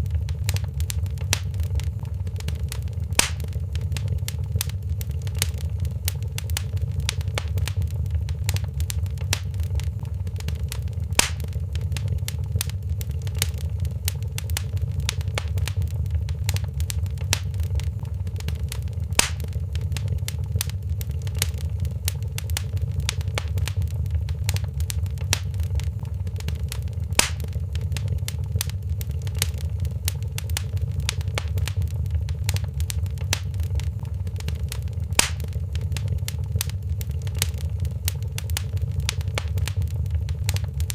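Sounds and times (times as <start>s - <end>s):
loud fire pop: 0.0s - 20.7s, 21.3s - 28.7s, 30.4s - 36.7s
wood fire crackling: 0.0s - 40.9s.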